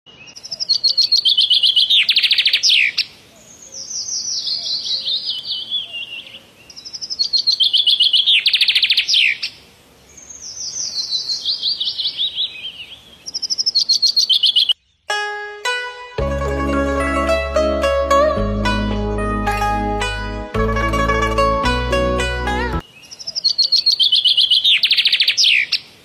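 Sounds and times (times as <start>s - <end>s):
bird song with chirps and trill: 0.1s - 15.8s, 22.2s - 26.0s.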